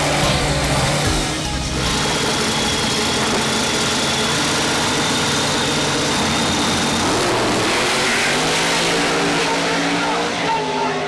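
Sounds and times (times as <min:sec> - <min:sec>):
drag car engine idling: 0:00.0 - 0:07.8.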